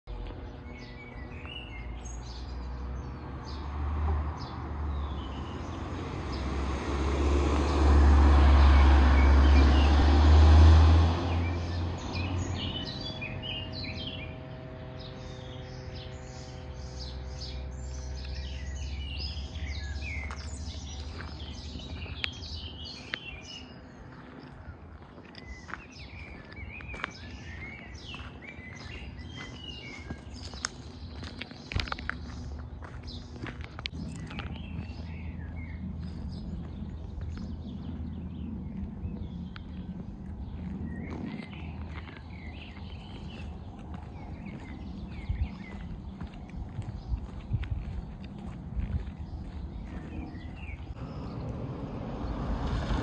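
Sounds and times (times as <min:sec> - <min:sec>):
small birds chirping and singing: 0:00.0 - 0:10.1, 0:11.2 - 0:53.0
rushing noise with deep rumble: 0:31.4 - 0:53.0.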